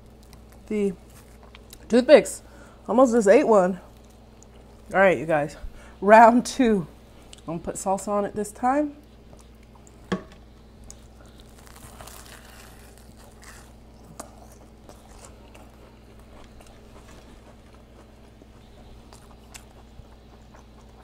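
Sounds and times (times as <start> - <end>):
crunchy chewing: 0.0 - 1.9, 3.8 - 5.0, 9.0 - 21.0
faint steady hum: 0.0 - 21.0.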